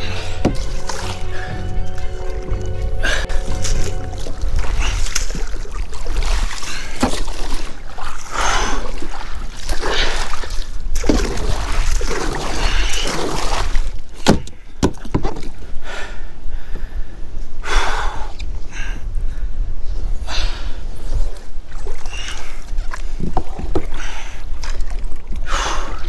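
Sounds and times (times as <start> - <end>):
water splashing around kayak: 0.0 - 15.8, 20.9 - 26.0.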